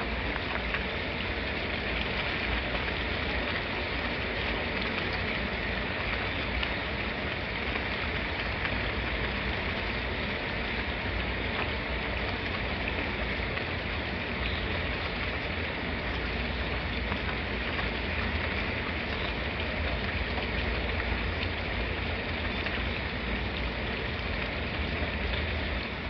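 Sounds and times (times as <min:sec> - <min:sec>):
raindrop ticks: 0:00.0 - 0:26.0
steady rain hiss: 0:00.0 - 0:26.0.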